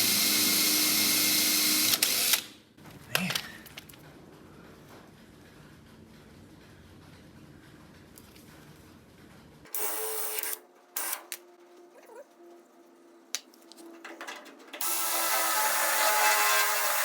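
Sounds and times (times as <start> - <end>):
power drill boring into steel: 14.8 - 17.0.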